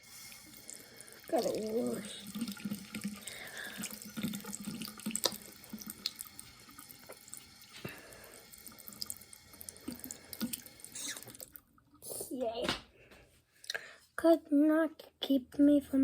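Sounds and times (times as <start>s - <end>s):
tap water running into sink: 0.0s - 11.6s
water drips: 0.0s - 12.0s.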